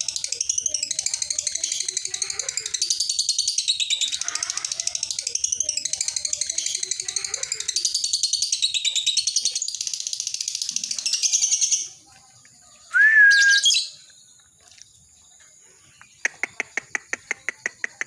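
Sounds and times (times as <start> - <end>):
bird high trill: 12.9 - 14.1
bird sharp chips: 15.8 - 18.0.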